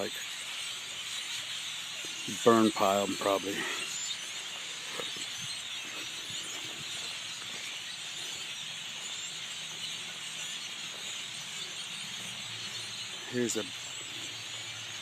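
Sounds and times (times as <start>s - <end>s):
chorus of birds chirping: 0.0s - 15.0s.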